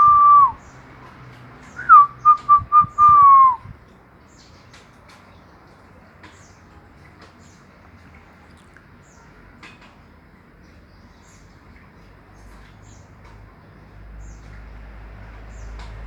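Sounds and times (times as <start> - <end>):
bird chirping: 1.7 - 3.6.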